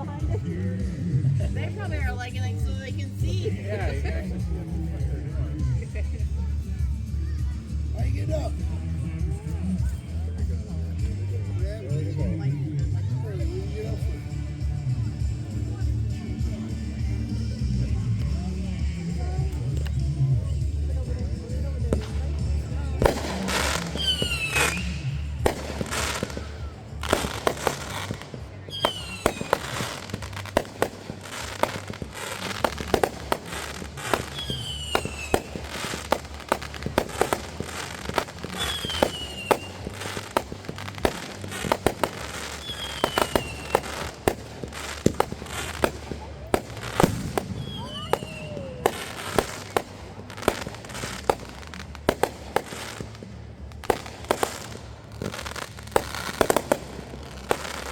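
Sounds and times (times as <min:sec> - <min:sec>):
fireworks bangs and pops: 0:00.0 - 0:57.9
falling firework whistle: 0:47.6 - 0:48.9.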